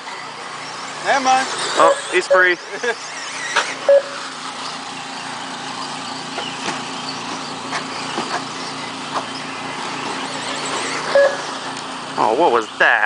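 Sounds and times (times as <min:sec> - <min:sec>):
electric rc trucks humming: 0:00.0 - 0:13.0
clicks and clacks: 0:06.4 - 0:09.3.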